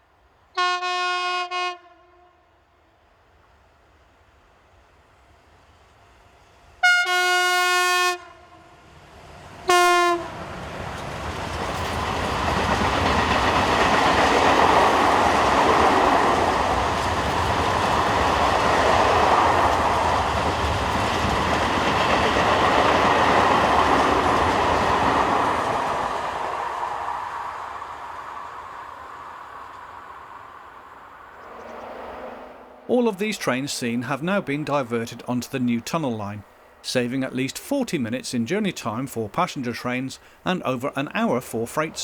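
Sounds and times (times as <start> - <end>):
locomotive horn blasts: 0.6 - 2.3, 6.8 - 8.6, 9.7 - 10.3
freight train wheels rumbling: 8.8 - 42.0.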